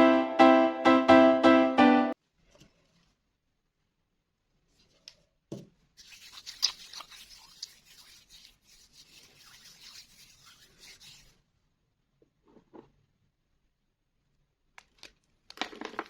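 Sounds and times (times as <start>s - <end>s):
chalk scraping: 6.0s - 11.4s.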